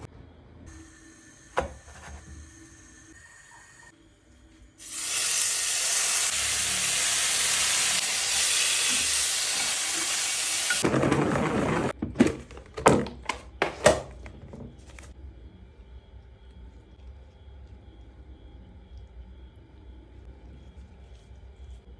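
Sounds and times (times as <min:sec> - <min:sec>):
food sizzling in a pan: 0:04.8 - 0:10.8.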